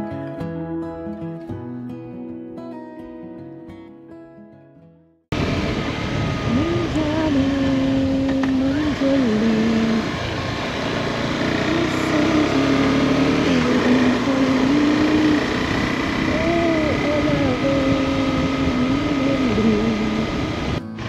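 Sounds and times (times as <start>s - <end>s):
rushing wind noise: 5.3s - 20.9s
motorcycle engine revving: 5.3s - 21.0s.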